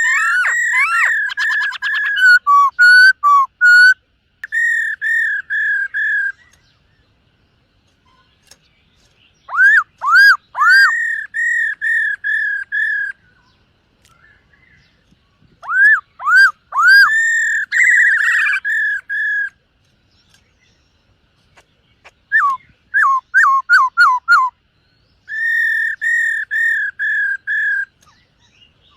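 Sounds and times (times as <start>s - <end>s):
bird singing whistled phrases: 0.0s - 6.6s, 9.5s - 13.5s, 15.6s - 19.6s, 22.0s - 24.6s, 25.2s - 28.9s.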